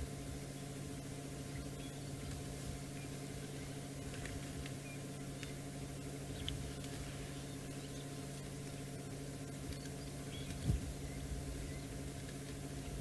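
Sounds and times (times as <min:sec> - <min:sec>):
faint short clicks: 0:09.6 - 0:10.7.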